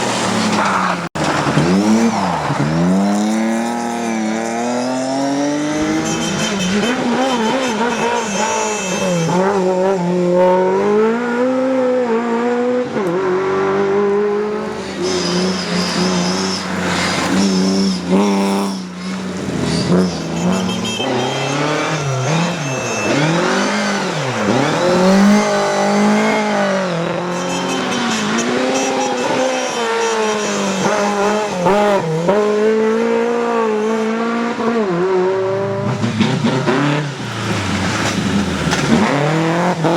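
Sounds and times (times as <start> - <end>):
tyres squealing: 0.0 - 11.2, 14.3 - 34.4, 35.4 - 39.9
rally car engine revving: 0.0 - 39.9.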